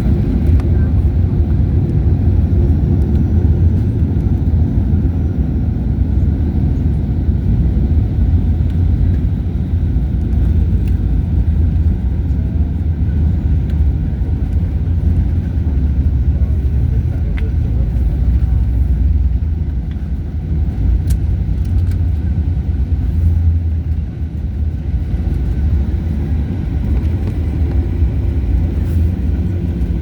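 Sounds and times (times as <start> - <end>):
jet cabin engine rumble: 0.0 - 30.0.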